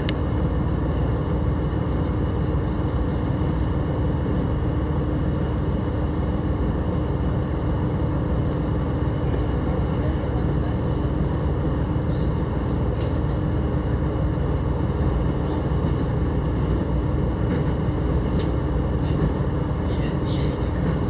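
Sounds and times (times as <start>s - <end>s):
steady train hum: 0.0s - 21.0s
train wheels rumbling on rail: 0.0s - 21.0s.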